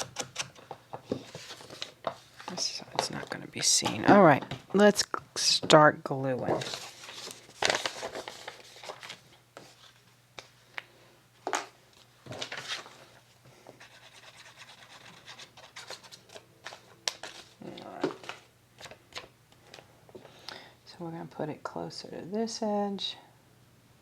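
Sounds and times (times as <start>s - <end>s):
paper rustling and tapping: 0.0s - 4.7s, 15.0s - 19.8s.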